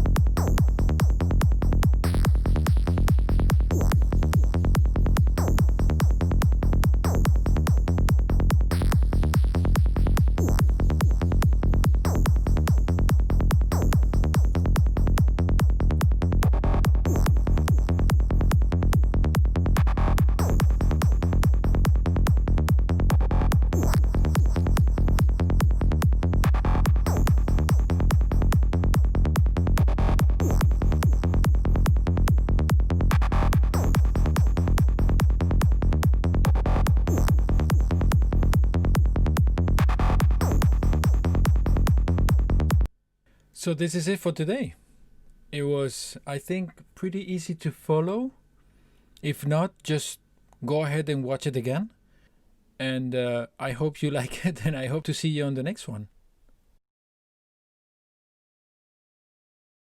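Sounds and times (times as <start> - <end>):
fast kick drum and rolling bass: 0.0 - 42.9.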